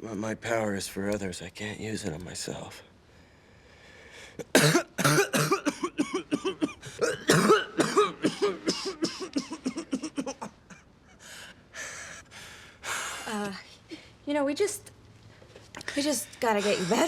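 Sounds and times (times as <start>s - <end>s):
man coughing harshly: 4.4s - 10.8s.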